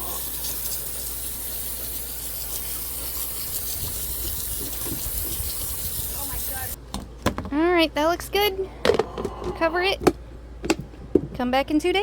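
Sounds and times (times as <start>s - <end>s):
water pouring into feed: 0.0s - 6.8s.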